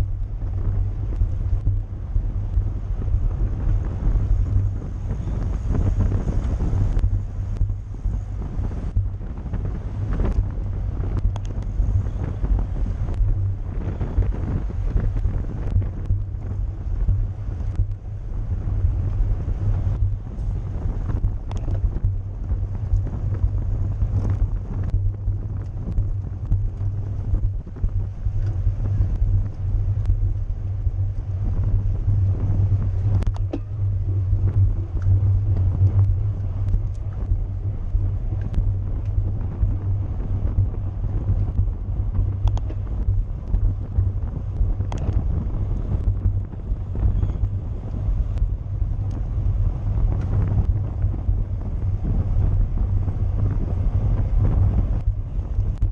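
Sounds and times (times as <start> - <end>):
wind buffeting microphone: 0.0 - 55.9
faint clicks: 11.1 - 12.4, 21.1 - 22.0, 41.5 - 43.6, 44.8 - 45.2.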